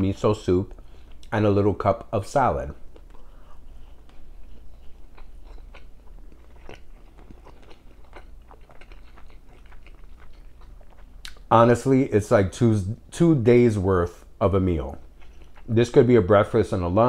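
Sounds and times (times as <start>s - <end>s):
low steady hum: 0.0s - 17.0s
man chewing food: 0.7s - 1.4s, 2.8s - 11.5s, 14.8s - 16.1s.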